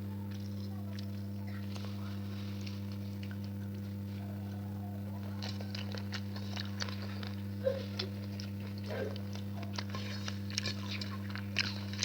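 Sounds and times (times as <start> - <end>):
mouth smacks and chewing: 5.2 - 12.0.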